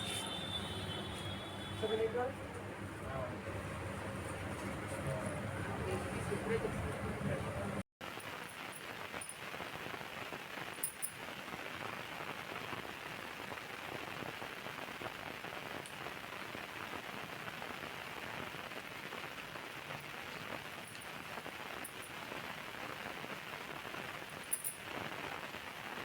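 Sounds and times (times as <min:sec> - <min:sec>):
rain falling: 0:08.0 - 0:26.0.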